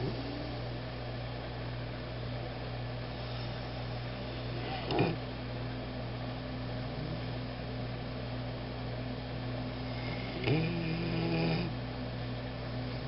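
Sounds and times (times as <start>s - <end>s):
dog snoring: 0.0s - 0.7s, 3.1s - 5.2s, 6.8s - 7.4s, 9.7s - 11.8s
low background hum: 0.0s - 13.0s.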